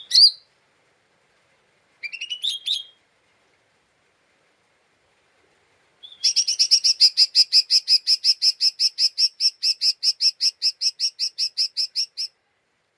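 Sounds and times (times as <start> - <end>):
bird chirping chatter: 6.0 - 12.3.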